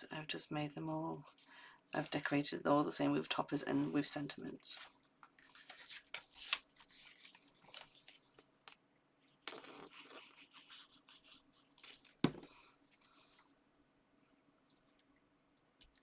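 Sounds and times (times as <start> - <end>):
paper rustling: 4.7 - 8.5
card knocking on table: 12.2 - 12.5.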